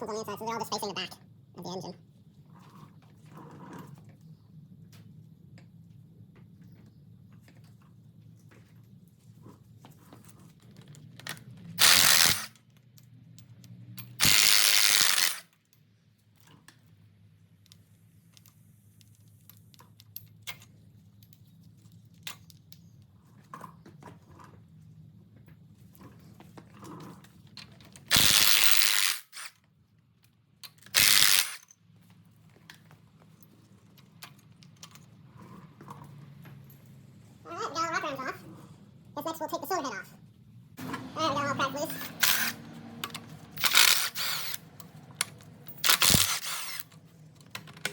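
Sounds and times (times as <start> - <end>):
metal parts clicking: 11.2 - 15.6, 28.1 - 29.6, 30.6 - 31.8, 41.9 - 47.9
power tool running: 11.8 - 12.5, 14.2 - 15.4, 28.1 - 29.5, 31.0 - 31.6, 41.9 - 42.7, 43.5 - 44.7, 45.8 - 46.9.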